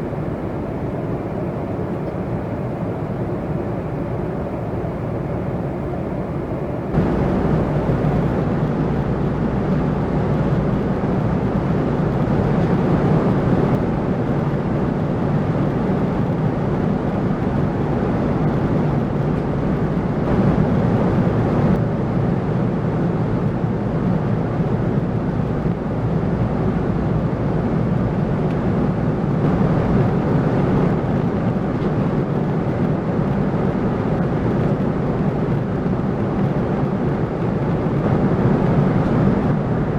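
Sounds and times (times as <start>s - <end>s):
airplane cabin engine drone: 0.0s - 23.0s, 24.1s - 39.9s.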